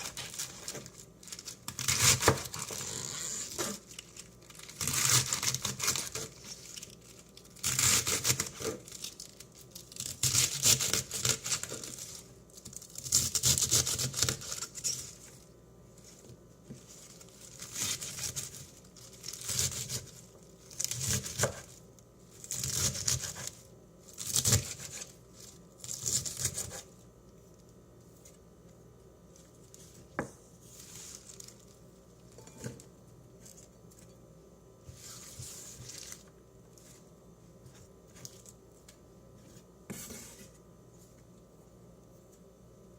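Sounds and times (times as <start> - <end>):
crinkling and tearing by hand: 0.0 - 15.4.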